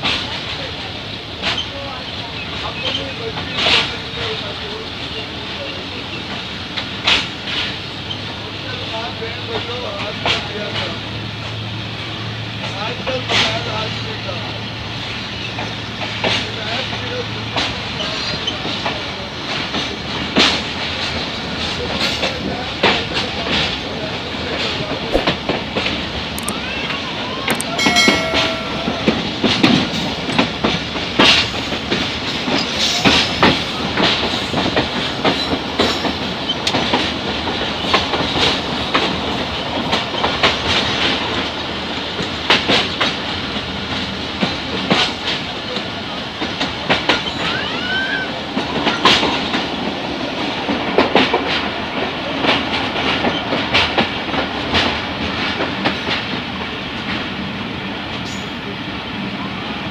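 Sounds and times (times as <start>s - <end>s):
train running rumble: 0.0s - 59.9s
wheels clacking over rail joints: 28.0s - 47.6s.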